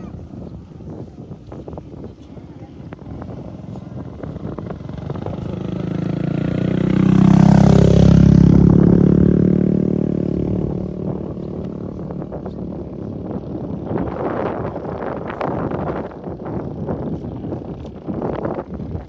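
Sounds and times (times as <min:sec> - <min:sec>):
motorbike passing by: 0:01.6 - 0:19.0.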